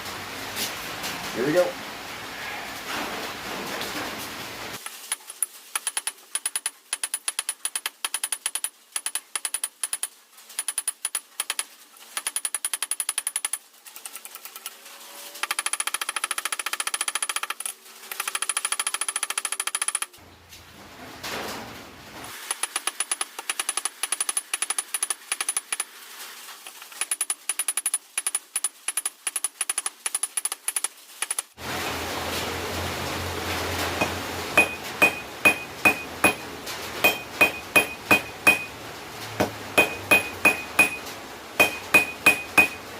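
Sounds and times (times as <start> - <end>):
low steady hum: 31.6 - 42.9
hammer striking hot steel on anvil: 34.0 - 38.8, 39.4 - 42.8.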